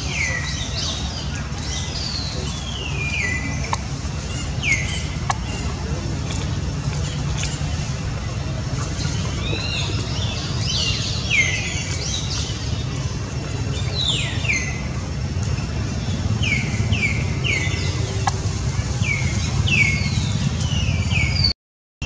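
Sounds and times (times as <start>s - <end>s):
birds chirping: 0.0s - 21.5s
steady low rumble: 0.0s - 21.5s.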